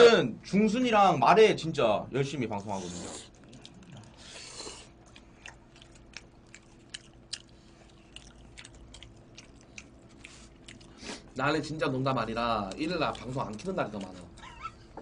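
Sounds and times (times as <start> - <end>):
chewing food: 2.5 - 15.0.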